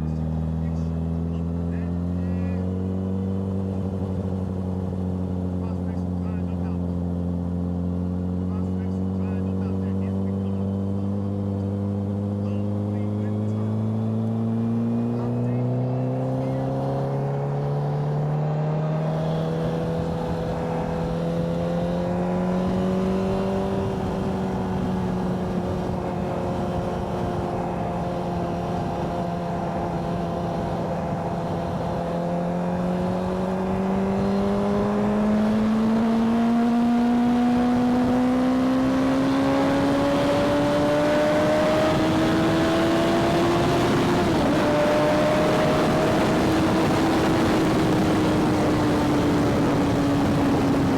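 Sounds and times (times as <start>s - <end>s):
motorcycle engine accelerating: 0.0s - 50.9s
wind rush: 16.7s - 38.3s, 39.5s - 50.9s.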